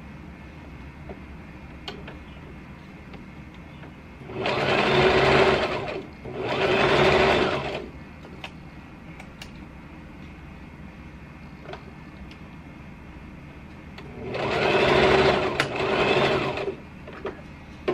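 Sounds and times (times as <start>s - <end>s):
sewing machine stitching: 4.3s - 7.9s, 14.1s - 16.8s.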